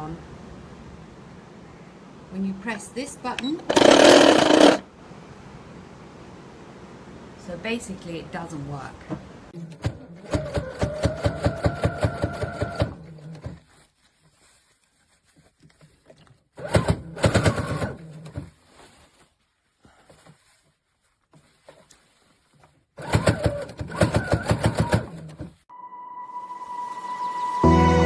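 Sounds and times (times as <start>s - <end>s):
sewing machine running: 3.6s - 4.8s, 9.7s - 13.4s, 16.6s - 18.4s, 23.0s - 25.5s.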